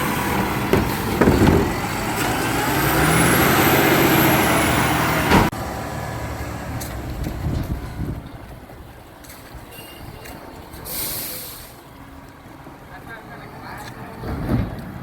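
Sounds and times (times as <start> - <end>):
garbage truck engine running: 0.0 - 8.8.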